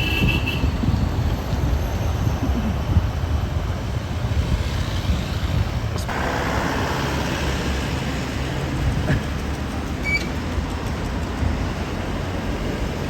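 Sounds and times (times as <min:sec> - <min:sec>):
road traffic rumble: 0:00.0 - 0:13.0
rushing noise: 0:00.6 - 0:13.0.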